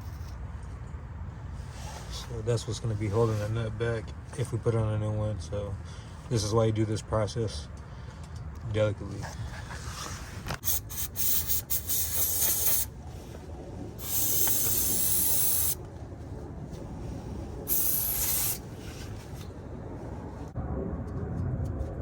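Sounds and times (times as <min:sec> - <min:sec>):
hissing scraping on metal threads: 0:10.6 - 0:12.9, 0:14.0 - 0:15.8, 0:17.7 - 0:19.4.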